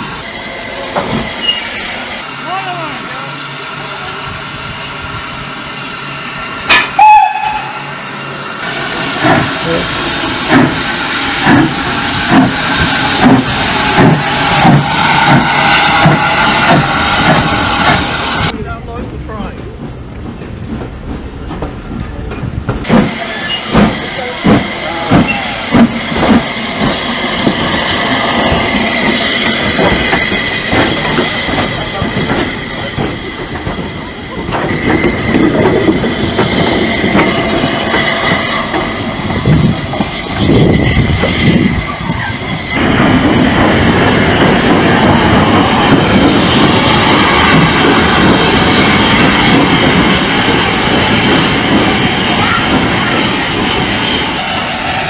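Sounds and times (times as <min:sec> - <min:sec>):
train wheel and rail rumble: 0:00.0 - 0:55.0
thin wheel squeal: 0:01.4 - 0:01.8.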